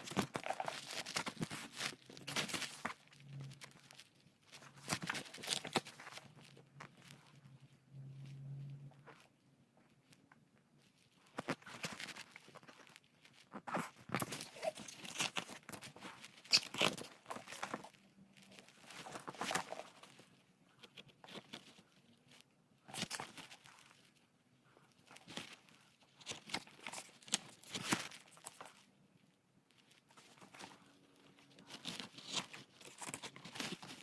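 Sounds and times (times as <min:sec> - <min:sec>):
wrapping tearing and crinkling: 0:00.0 - 0:09.2, 0:10.8 - 0:28.9, 0:29.7 - 0:34.0.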